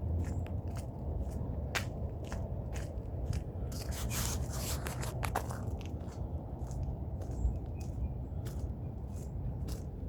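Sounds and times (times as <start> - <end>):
scrapes and crunches: 3.7 - 5.8.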